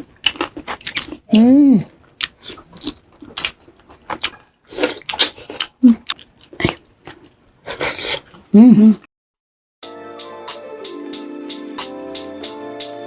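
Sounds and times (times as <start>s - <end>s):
chewing crunchy food: 0.0s - 8.5s
person humming: 8.5s - 9.1s.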